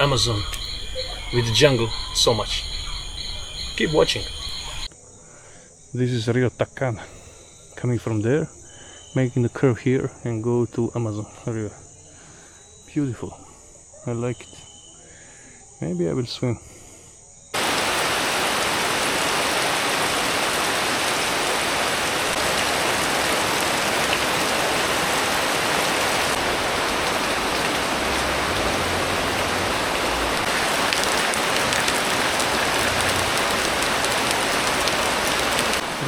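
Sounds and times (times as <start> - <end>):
hard rain pouring: 0.0 - 4.9, 17.6 - 36.0.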